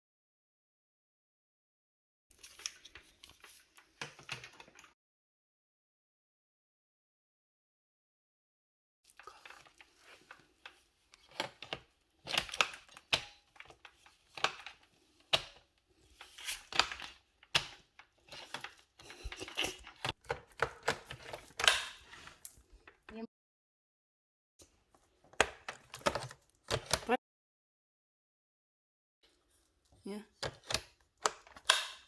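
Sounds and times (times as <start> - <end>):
plastic parts clicking and knocking: 2.5 - 4.9, 9.2 - 23.2, 24.6 - 27.2, 30.3 - 32.0.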